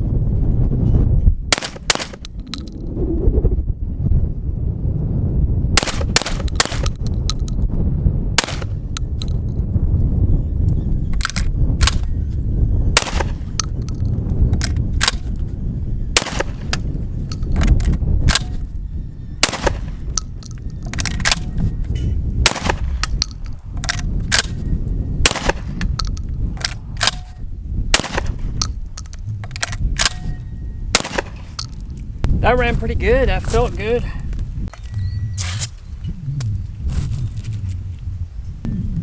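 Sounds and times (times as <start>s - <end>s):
wind rumble on microphone: 0.0s - 39.0s
shotgun shots: 1.5s - 2.3s, 5.8s - 7.0s, 8.4s - 8.8s, 13.0s - 13.6s, 16.2s - 16.9s, 19.4s - 20.2s, 22.4s - 23.2s, 25.2s - 26.0s, 26.7s - 28.6s, 29.6s - 31.6s.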